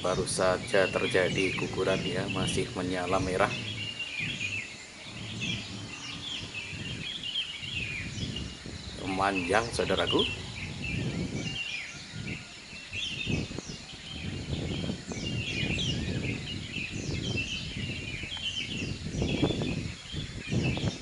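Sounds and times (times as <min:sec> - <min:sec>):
low rumbling background noise: 0:00.0 - 0:11.6
birds chirping: 0:00.0 - 0:21.0.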